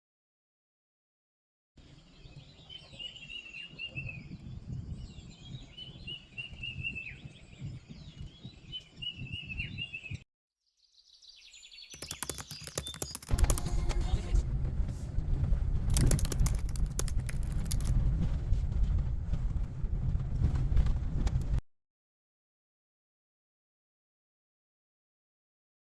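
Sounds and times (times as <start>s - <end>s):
wind rumbling on microphone: 1.8s - 10.2s, 13.3s - 21.6s
rapid clicking: 11.9s - 21.6s.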